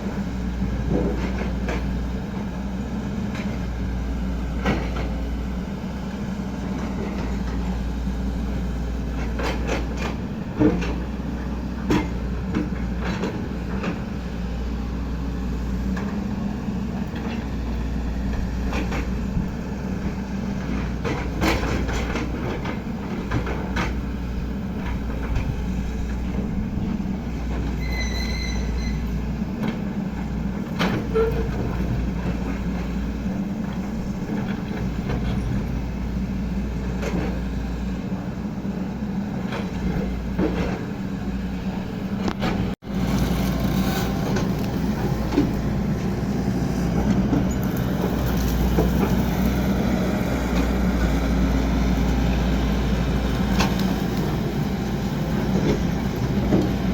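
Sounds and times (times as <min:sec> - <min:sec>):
excavator diesel engine running: 0:00.0 - 0:56.9
short high squeal: 0:27.8 - 0:29.2, 0:43.1 - 0:44.5.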